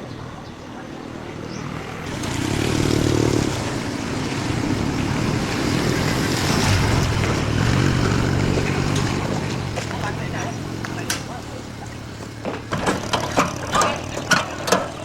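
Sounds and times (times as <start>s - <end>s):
vehicle engine rumble: 0.0s - 15.0s
rushing noise: 1.1s - 11.1s.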